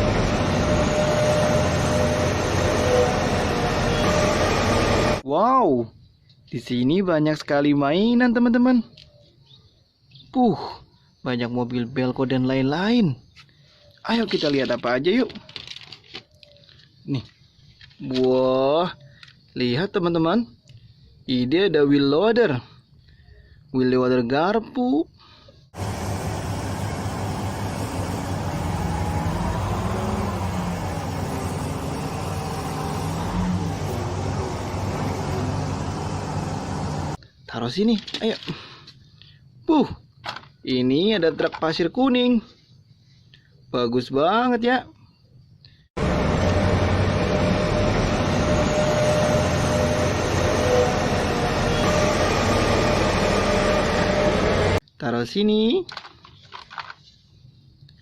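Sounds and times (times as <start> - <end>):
vehicle engine running: 25.8 - 37.2, 46.0 - 54.8.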